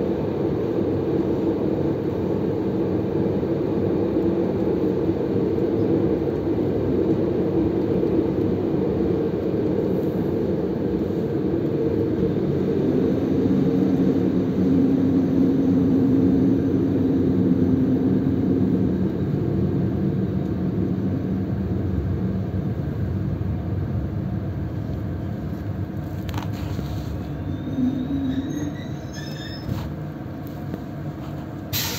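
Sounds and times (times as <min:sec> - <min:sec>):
train running noise: 0:00.0 - 0:31.9
faint high brake squeal: 0:26.9 - 0:30.0.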